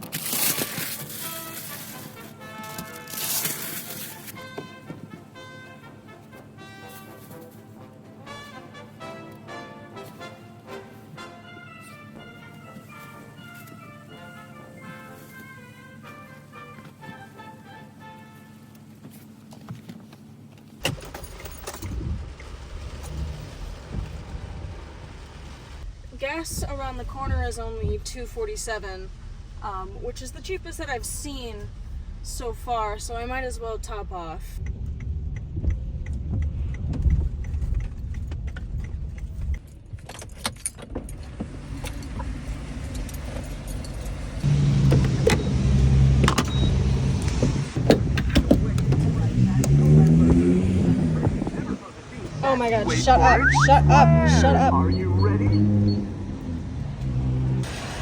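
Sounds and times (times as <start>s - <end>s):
minivan engine rumbling: 10.2s - 58.0s
keys jingling: 42.8s - 44.4s.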